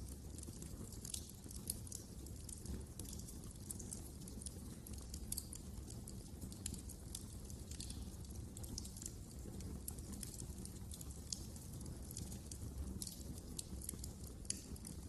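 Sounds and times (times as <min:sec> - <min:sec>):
low steady fire rumble: 0:00.0 - 0:15.0
wood fire crackling: 0:00.0 - 0:15.0.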